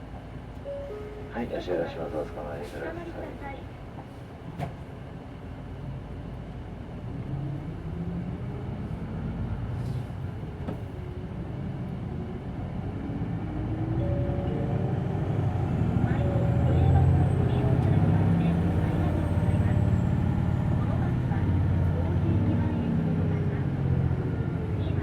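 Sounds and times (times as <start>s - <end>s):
bus engine and drive whine: 0.0s - 25.0s.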